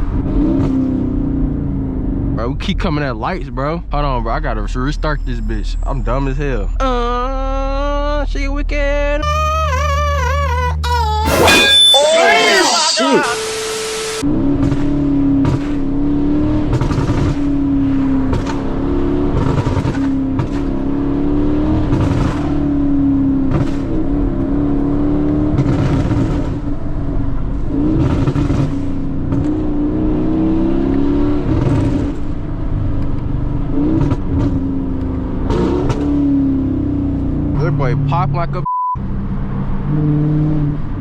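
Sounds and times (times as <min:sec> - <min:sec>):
car engine revving: 0:00.0 - 0:41.0
exhaust pops and crackles: 0:14.6 - 0:16.0, 0:16.6 - 0:20.9, 0:21.7 - 0:24.5, 0:25.3 - 0:26.8, 0:27.9 - 0:29.7, 0:31.4 - 0:36.1.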